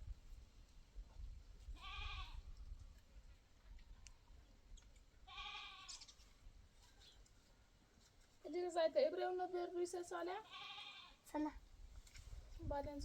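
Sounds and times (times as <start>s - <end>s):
goat bleating faintly: 10.4s - 11.4s.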